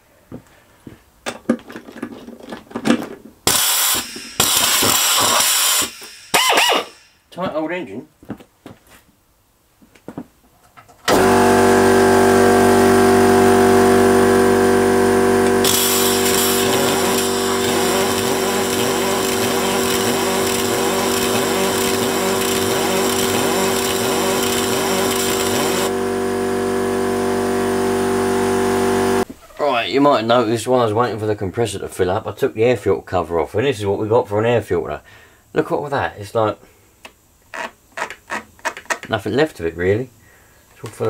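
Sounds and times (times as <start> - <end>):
air compressor humming: 3.5 - 7.1, 11.1 - 29.3.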